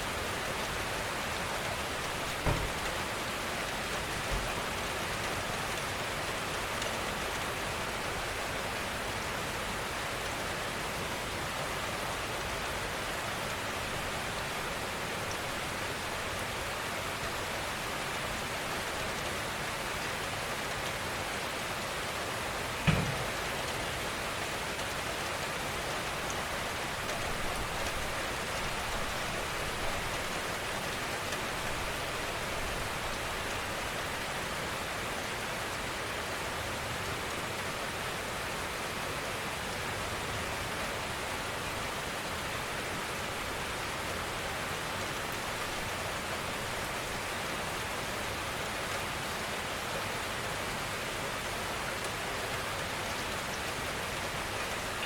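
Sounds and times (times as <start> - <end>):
gentle rainfall: 0.0 - 55.0.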